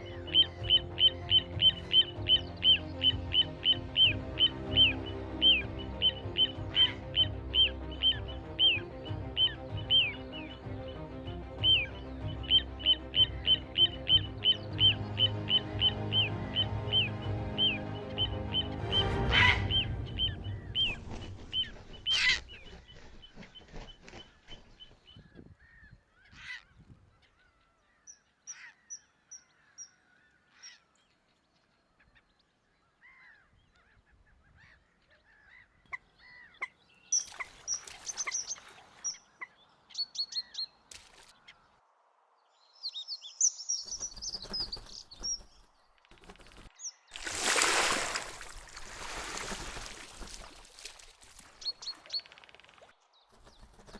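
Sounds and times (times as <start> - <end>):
birds honking: 0.0 - 22.8
wild birds calling: 0.0 - 26.7, 32.8 - 40.8.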